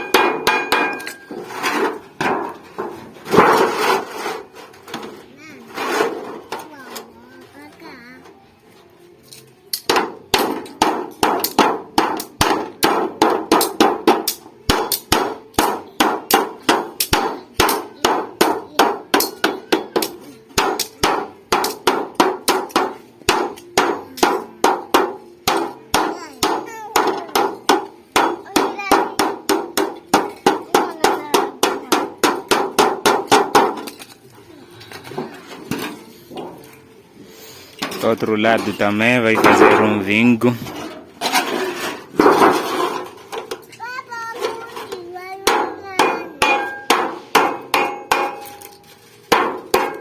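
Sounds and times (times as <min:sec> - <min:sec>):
hammer beating sheet metal: 0:00.0 - 0:05.1, 0:09.8 - 0:34.0, 0:37.8 - 0:40.4, 0:41.2 - 0:43.6, 0:44.5 - 0:50.0.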